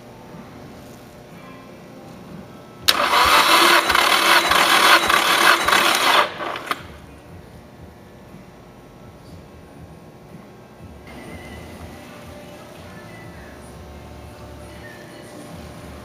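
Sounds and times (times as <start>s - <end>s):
engine cranking on starter motor: 2.9s - 6.9s.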